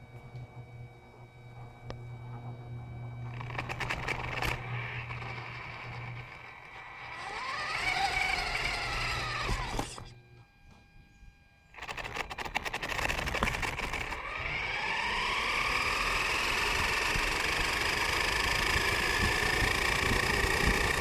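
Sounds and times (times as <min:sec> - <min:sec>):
rc car motor whining: 0:01.8 - 0:10.2, 0:11.7 - 0:21.0
rc car chassis rattling and clicking: 0:03.3 - 0:10.1, 0:11.8 - 0:21.0.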